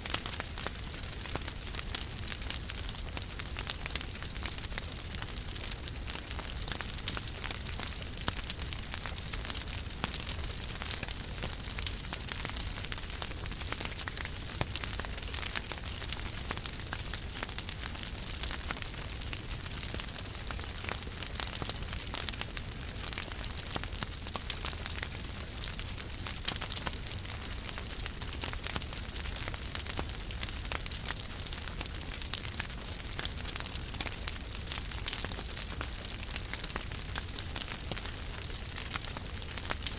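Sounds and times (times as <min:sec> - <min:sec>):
fire crackling: 0:00.0 - 0:39.9
fire hissing and rumbling: 0:00.0 - 0:39.9.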